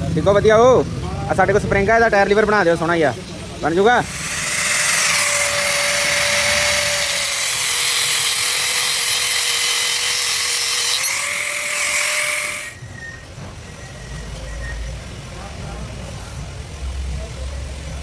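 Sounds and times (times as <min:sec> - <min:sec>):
electric grinder on steel: 0:03.9 - 0:13.2.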